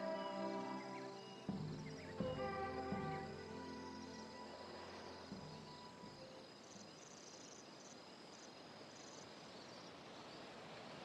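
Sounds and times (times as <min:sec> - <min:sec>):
background music: 0:00.0 - 0:07.2
insects chirping in trills: 0:00.0 - 0:11.0
steady background hiss: 0:00.0 - 0:11.0.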